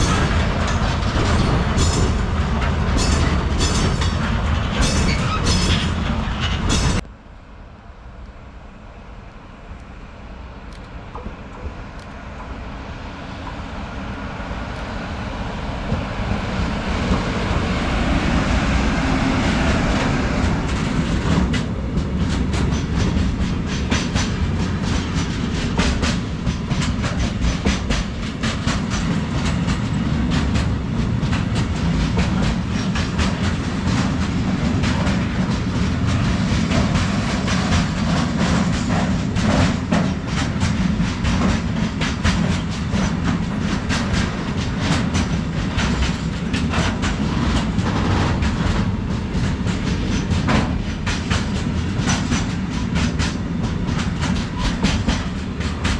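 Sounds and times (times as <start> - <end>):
wheels clicking over rail joints: 0.0 - 7.0, 20.0 - 55.9
freight train wagons rumbling: 0.0 - 55.9.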